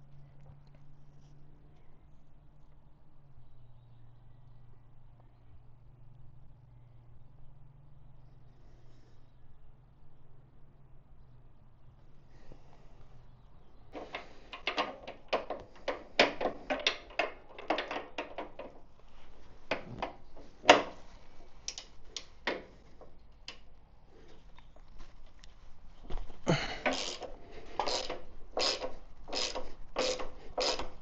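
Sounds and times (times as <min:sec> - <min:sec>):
hand tools and metal parts clinking: 0:26.4 - 0:31.0.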